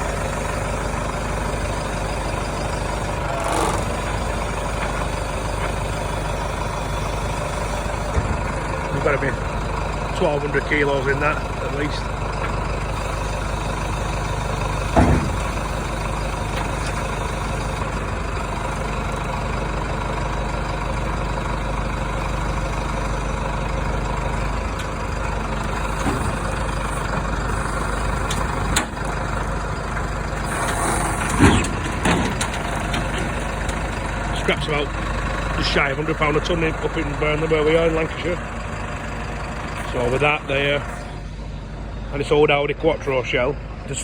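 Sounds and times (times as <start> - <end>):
crane lorry diesel engine: 0.0 - 44.0
metal clunks: 6.9 - 9.8, 14.6 - 18.5, 24.4 - 29.3, 29.9 - 35.8.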